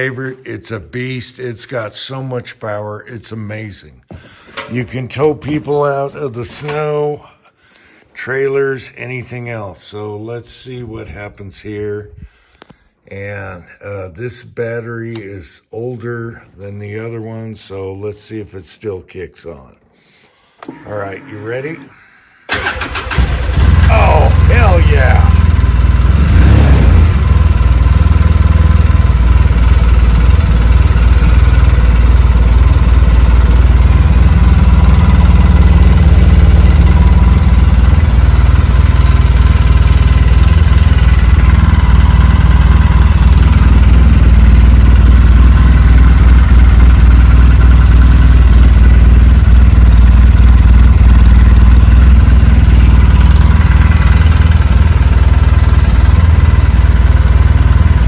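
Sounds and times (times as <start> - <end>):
quad engine idling: 22.5 - 58.0.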